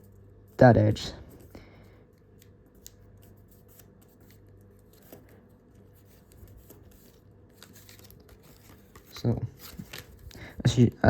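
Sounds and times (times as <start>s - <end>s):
low steady hum: 0.0s - 11.0s
paper rustling and crinkling: 2.7s - 10.9s.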